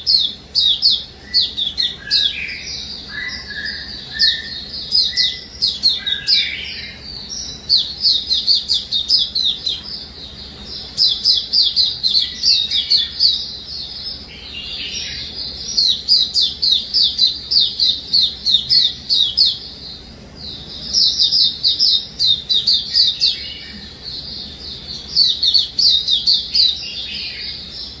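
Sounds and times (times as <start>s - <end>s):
songbird singing high chirps: 0.0s - 28.0s.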